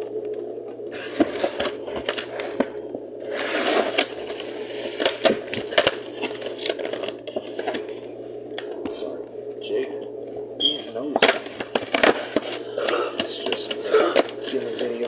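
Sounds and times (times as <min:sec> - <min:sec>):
steady low hum: 0:00.0 - 0:15.0
packaging crinkling: 0:00.9 - 0:08.1, 0:11.2 - 0:15.0.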